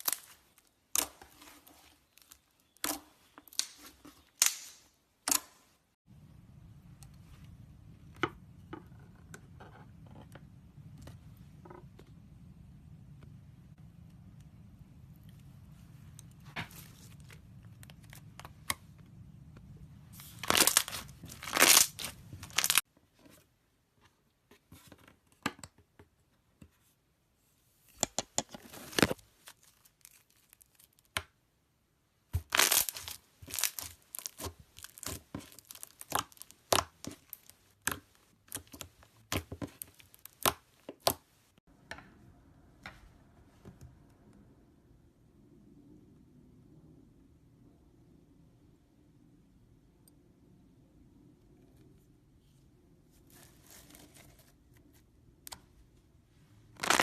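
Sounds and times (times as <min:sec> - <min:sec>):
slime crackling and popping: 0:00.0 - 0:01.4, 0:02.1 - 0:05.4, 0:20.2 - 0:22.8, 0:32.4 - 0:41.2, 0:56.8 - 0:57.0.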